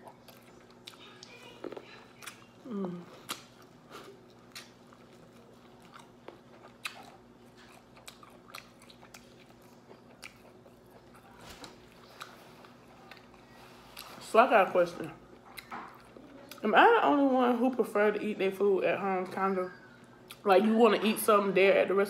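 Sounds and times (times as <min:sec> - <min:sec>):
person biting and chewing food: 0:01.7 - 0:14.1.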